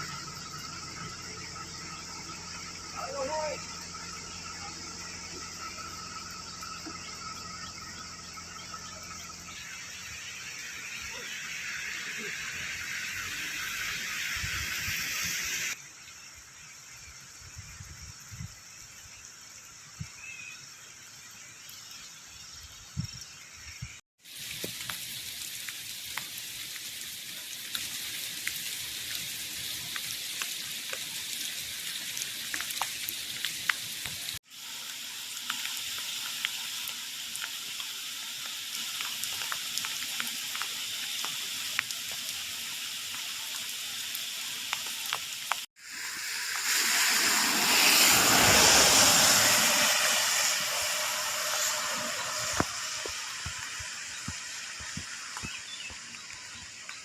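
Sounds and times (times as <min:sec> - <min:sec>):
steady rain pattering: 0:24.2 - 0:57.0.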